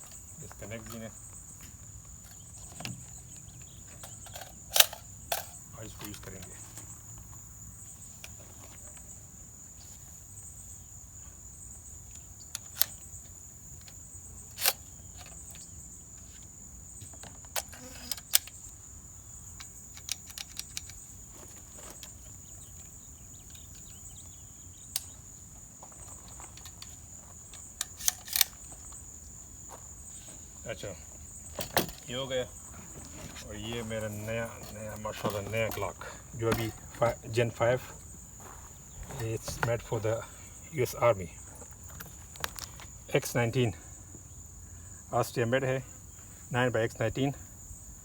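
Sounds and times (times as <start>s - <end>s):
crickets trilling: 0.0s - 48.0s
rifle handling clicks: 4.0s - 6.4s, 12.1s - 13.0s, 13.8s - 15.7s, 17.5s - 18.7s, 19.6s - 21.0s, 27.8s - 28.7s.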